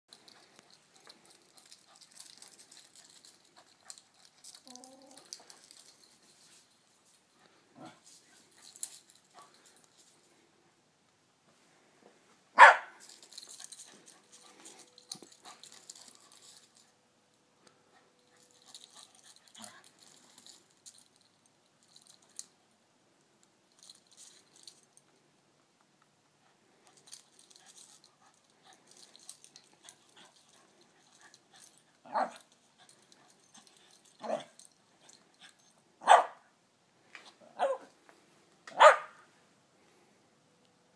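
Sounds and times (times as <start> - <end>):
dog barking: 12.6 - 13.0, 32.1 - 32.4, 36.0 - 36.5, 37.5 - 37.9, 38.7 - 39.2.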